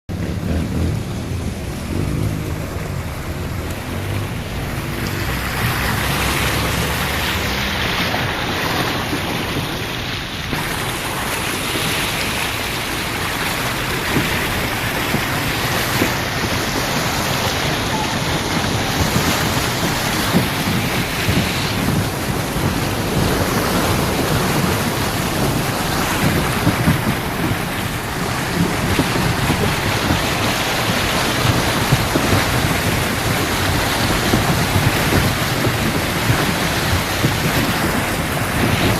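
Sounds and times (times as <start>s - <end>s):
heavy rain pouring: 0.1s - 38.9s
wind: 0.1s - 38.9s.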